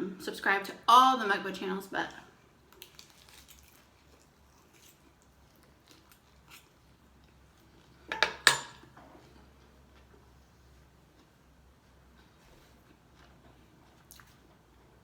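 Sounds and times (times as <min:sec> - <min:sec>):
utensil clinking against dish: 0:08.1 - 0:08.9.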